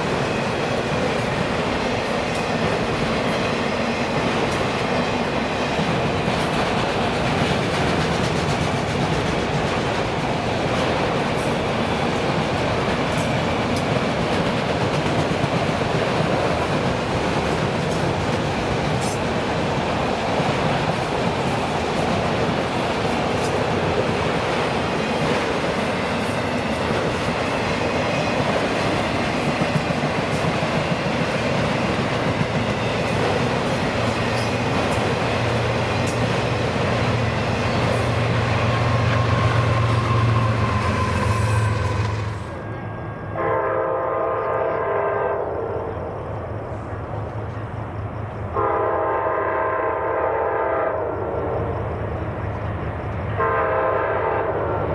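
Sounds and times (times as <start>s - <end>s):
train rumble and wheel clatter: 0.0s - 54.9s
locomotive air horn: 38.2s - 42.8s, 43.4s - 45.5s, 48.6s - 51.1s, 53.4s - 54.8s.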